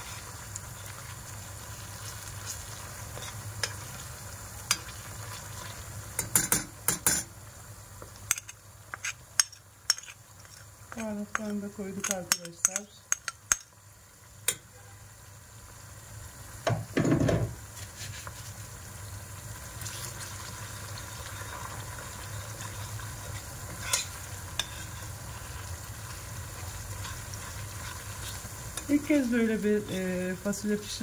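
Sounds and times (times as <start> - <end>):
onions sizzling in a pot: 0.0 - 31.0
spoon scraping pot: 3.1 - 3.9, 8.3 - 13.6, 22.6 - 25.7
spoon clinking against pot: 6.2 - 7.3, 10.9 - 13.7.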